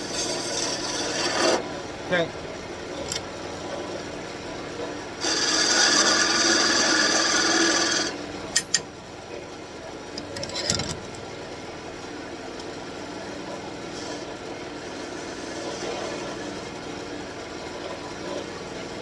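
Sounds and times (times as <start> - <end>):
turning tool rasping on wood: 0.0 - 1.7, 5.2 - 8.2, 14.0 - 16.7
lathe running hum: 0.0 - 19.0.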